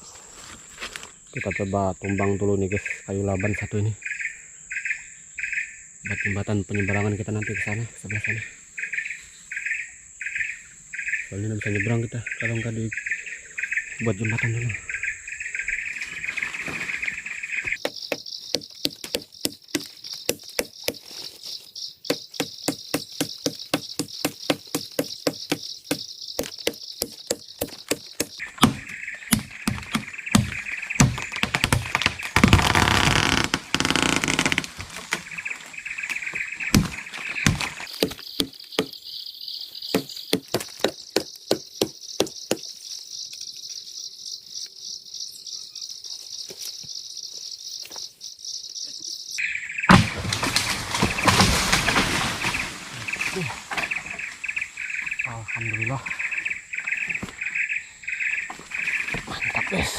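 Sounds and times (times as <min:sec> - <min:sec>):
insect buzzing: 0:15.3 - 0:46.5
axe chopping tree trunk: 0:17.7 - 0:21.1, 0:22.1 - 0:32.8, 0:36.6 - 0:39.0, 0:39.9 - 0:42.7, 0:49.9 - 0:52.4
tree crashing down: 0:28.4 - 0:38.2, 0:49.9 - 0:54.5.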